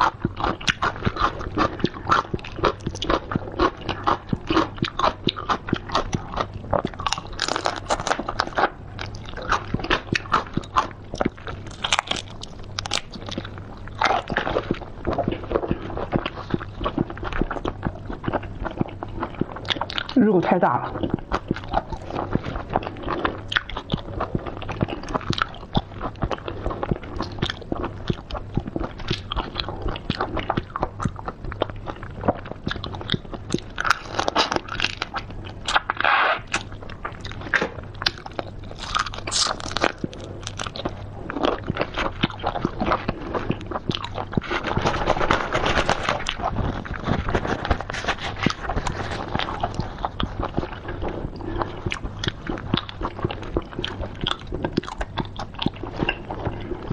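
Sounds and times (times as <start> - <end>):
person chewing crunchy seafood: 0.0 - 56.9.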